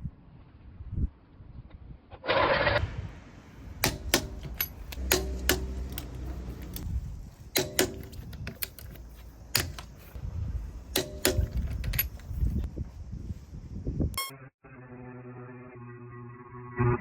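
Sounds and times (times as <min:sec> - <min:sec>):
metal tools clinking: 0:03.8 - 0:06.9, 0:07.6 - 0:10.2, 0:10.9 - 0:12.7.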